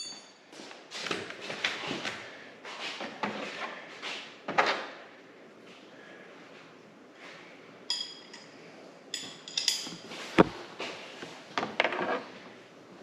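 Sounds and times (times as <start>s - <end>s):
metal tools clinking on metal: 0.0s - 0.3s, 7.9s - 8.5s, 9.1s - 10.1s.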